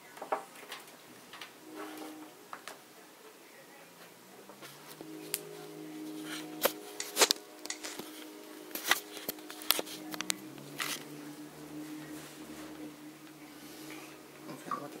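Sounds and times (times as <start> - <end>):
low hum: 1.6 - 15.0
plastic connectors clicking: 6.6 - 11.1.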